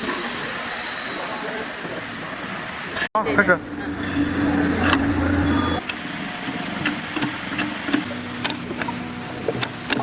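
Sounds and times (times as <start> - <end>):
low machine hum: 3.2 - 9.4.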